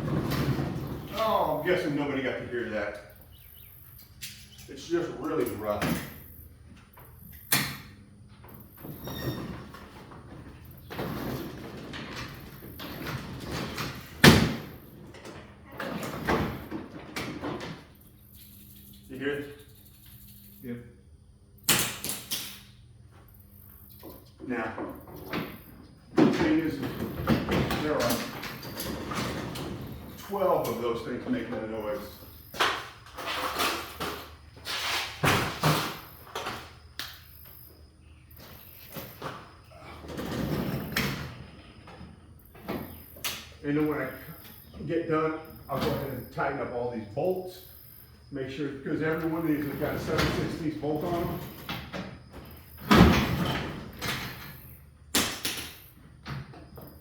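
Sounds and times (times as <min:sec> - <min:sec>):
garage door rollers rumbling: 0:00.0 - 0:02.8, 0:08.4 - 0:18.2, 0:24.5 - 0:36.9, 0:38.1 - 0:43.1, 0:48.7 - 0:54.8.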